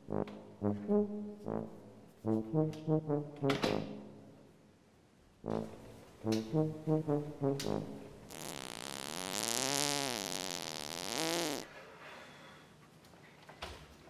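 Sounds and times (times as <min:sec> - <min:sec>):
fart: 0:08.3 - 0:11.7.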